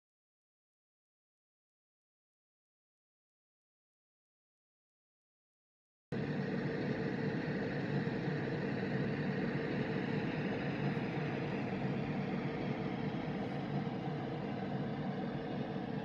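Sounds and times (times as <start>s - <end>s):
faint low drone: 6.2s - 16.0s.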